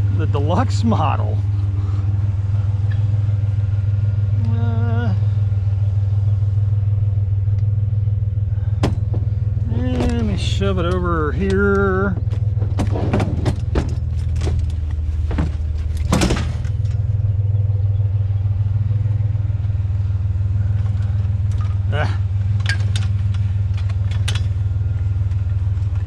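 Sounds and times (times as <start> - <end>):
truck engine droning: 0.0 - 26.0
knocks and rattles: 8.6 - 17.3, 20.8 - 26.0.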